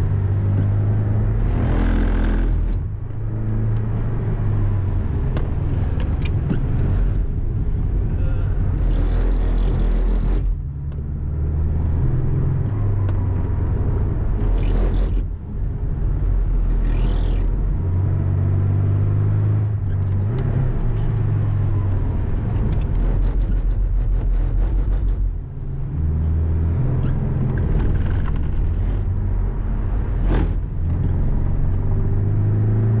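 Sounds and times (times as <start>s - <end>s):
car engine revving through gears: 0.0s - 7.6s, 8.6s - 33.0s.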